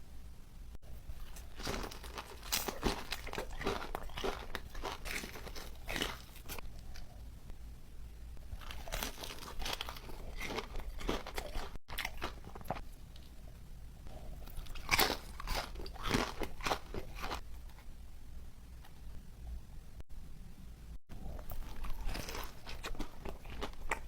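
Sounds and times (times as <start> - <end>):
crunchy bites and chewing: 0.9 - 7.2, 8.4 - 13.4, 14.1 - 17.9, 21.1 - 24.0.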